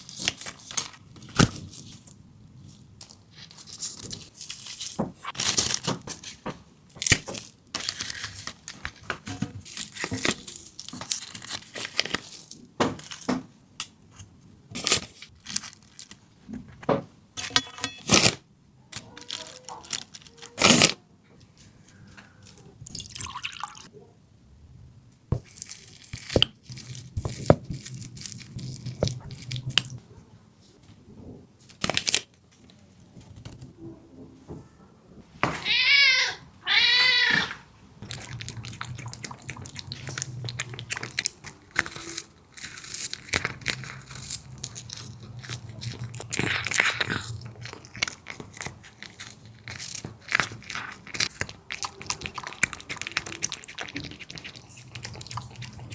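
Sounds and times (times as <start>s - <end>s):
wet crunching of juicy food: 25.4s - 30.0s, 38.0s - 55.9s.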